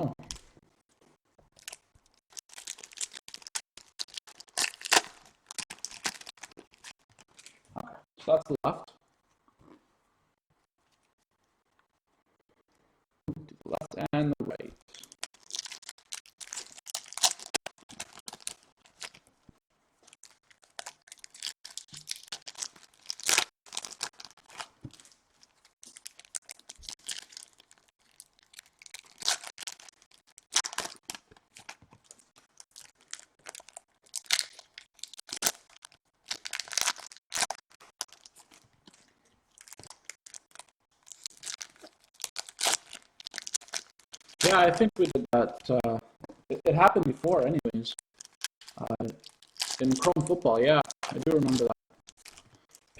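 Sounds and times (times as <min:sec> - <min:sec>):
wrappers tearing and crinkling: 0:01.6 - 0:07.6, 0:14.9 - 0:19.3, 0:20.0 - 0:45.2, 0:48.0 - 0:52.9
cards rustling: 0:49.8 - 0:52.3.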